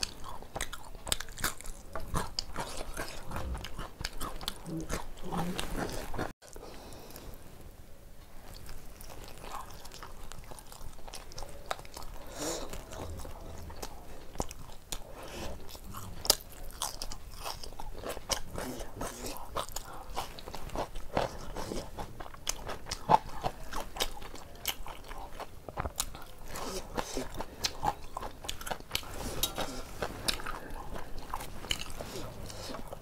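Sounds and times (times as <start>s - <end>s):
chewing and biting: 0.0s - 6.6s, 8.4s - 33.0s.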